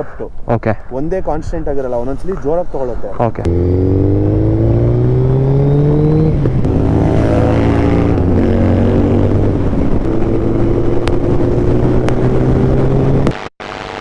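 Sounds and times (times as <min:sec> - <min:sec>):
motorcycle engine accelerating: 0:03.4 - 0:13.9.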